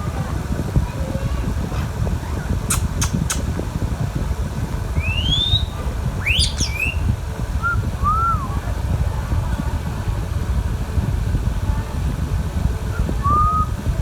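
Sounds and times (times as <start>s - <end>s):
sharp clicks: 2.7s - 3.5s
parrot whistling: 5.0s - 8.6s.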